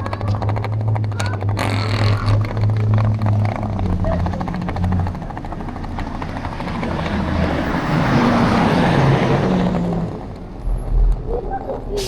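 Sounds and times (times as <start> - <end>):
large vehicle passing: 0.0 - 12.0.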